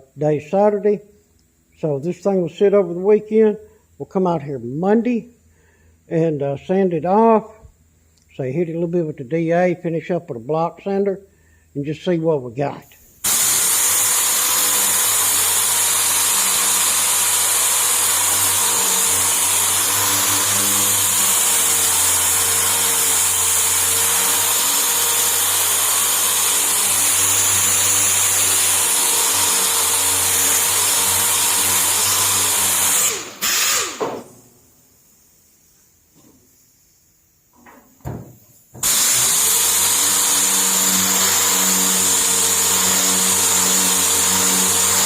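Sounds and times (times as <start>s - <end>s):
sander running: 13.2s - 34.3s, 38.8s - 45.0s.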